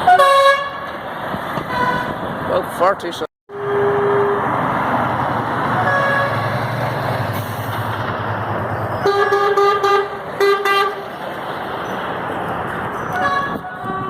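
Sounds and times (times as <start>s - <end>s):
truck horn blasts: 0.0s - 0.9s, 1.6s - 2.2s, 3.5s - 4.5s, 5.8s - 6.5s, 9.0s - 11.1s, 13.1s - 14.0s
trucks passing: 0.0s - 14.0s.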